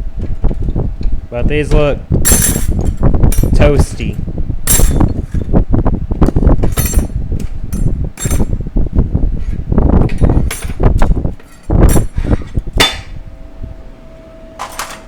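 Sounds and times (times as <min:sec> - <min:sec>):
metal parts clinking and knocking: 0:02.2 - 0:03.6, 0:04.7 - 0:05.5, 0:06.6 - 0:08.5, 0:10.1 - 0:12.2, 0:14.6 - 0:15.0.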